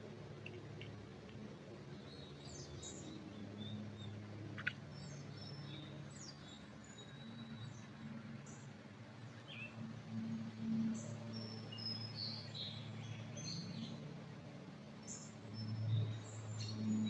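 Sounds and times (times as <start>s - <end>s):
small birds chirping: 0.4s - 9.8s.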